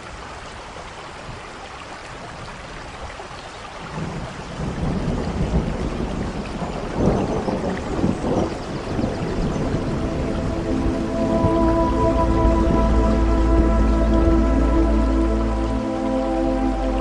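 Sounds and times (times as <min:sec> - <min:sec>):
steady rain: 0:00.0 - 0:17.0
thunder rumbling: 0:04.0 - 0:15.6.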